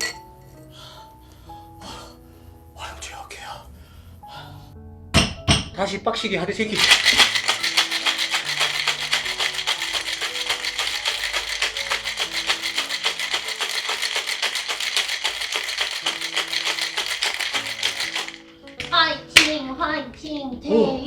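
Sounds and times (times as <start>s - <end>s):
background music: 0.0s - 21.0s
ice rattling in cocktail shaker: 6.8s - 19.0s.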